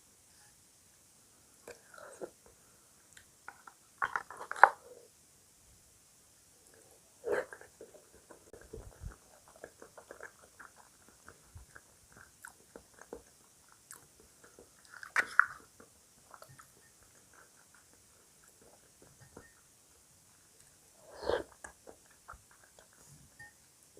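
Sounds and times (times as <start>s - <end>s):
chewing crunchy cereal: 3.2s - 5.0s, 6.7s - 23.4s.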